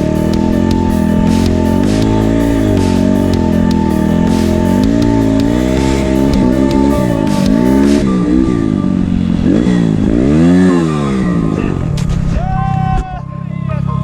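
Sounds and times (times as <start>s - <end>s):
music playing: 0.0s - 10.5s
motorcycle engine revving: 0.0s - 12.4s.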